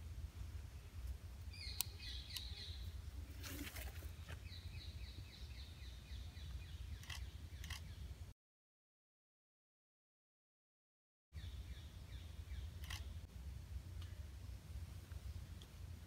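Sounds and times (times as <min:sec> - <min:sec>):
bird chirping: 0:00.8 - 0:08.1, 0:11.4 - 0:13.3
tripod and lens clicks: 0:07.0 - 0:07.9, 0:12.8 - 0:13.1.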